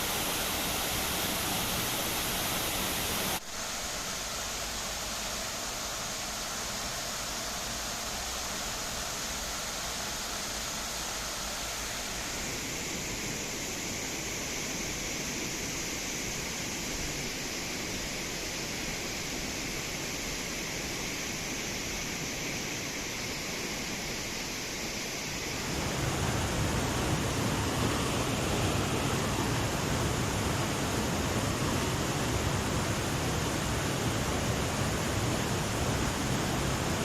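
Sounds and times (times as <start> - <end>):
river water rushing over rocks: 0.0 - 5.3, 25.4 - 37.0.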